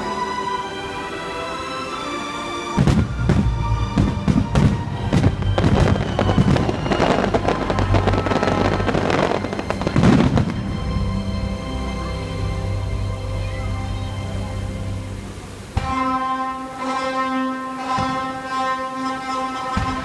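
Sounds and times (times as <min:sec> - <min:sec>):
orchestral music: 0:00.0 - 0:20.0
fireworks bursts and crackling: 0:02.8 - 0:10.6.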